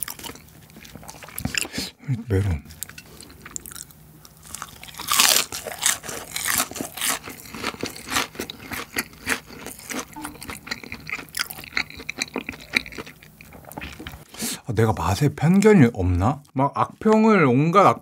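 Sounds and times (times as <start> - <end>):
crunchy fried chicken chewing: 0.0 - 1.8, 2.7 - 14.3.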